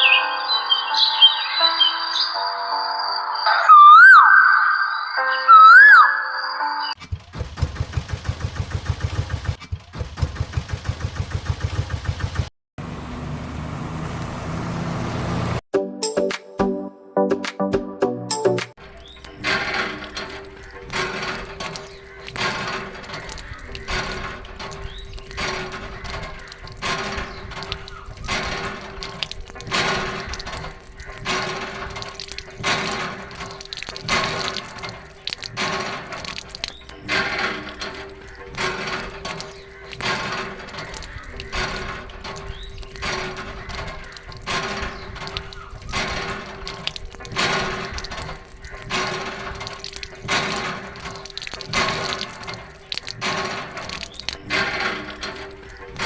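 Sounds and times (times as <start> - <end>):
water gushing and splashing: 7.0 - 12.5, 18.8 - 56.0
diesel tractor engine idling: 7.0 - 15.6, 18.8 - 56.0
smooth engine hum: 12.8 - 15.6.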